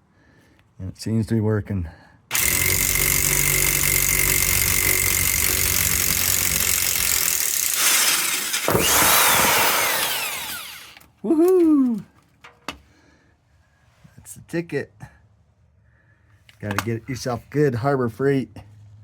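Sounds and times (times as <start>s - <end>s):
impact wrench running: 2.3s - 11.1s
person shouting woohoo: 11.2s - 12.1s.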